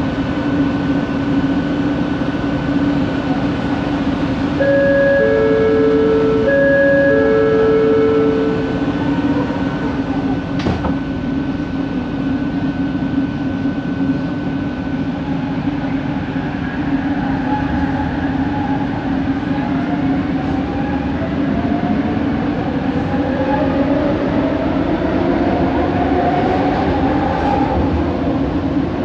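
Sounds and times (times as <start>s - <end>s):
train interior hum and rumble: 0.0s - 29.0s.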